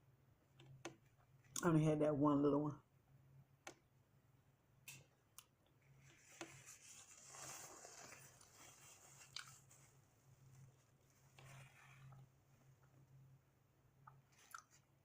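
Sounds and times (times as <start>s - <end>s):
low steady hum: 0.0s - 15.0s
person chewing: 9.3s - 9.6s, 14.0s - 14.8s.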